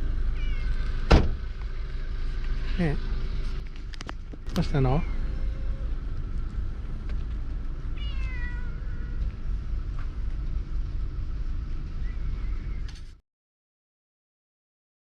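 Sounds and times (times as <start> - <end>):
low background rumble: 0.0 - 13.1
cat meowing: 0.3 - 1.0, 8.0 - 9.4.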